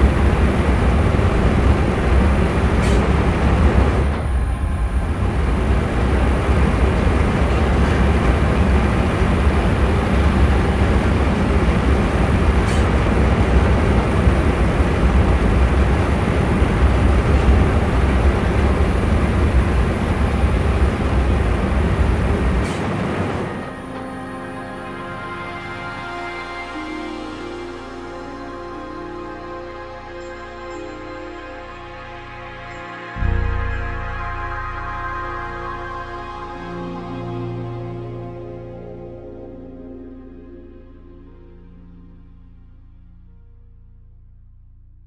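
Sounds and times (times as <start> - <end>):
steam boiler roaring: 0.0 - 25.1
deep low rumble: 0.0 - 45.0.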